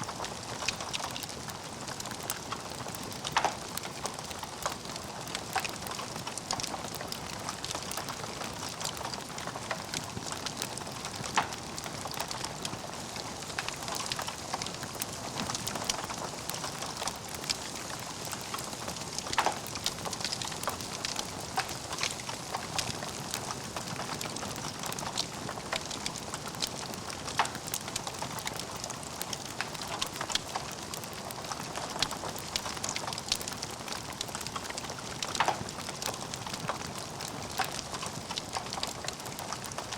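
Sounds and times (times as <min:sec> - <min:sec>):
wood fire crackling: 0:00.0 - 0:39.9
loud fire pops: 0:19.2 - 0:22.9.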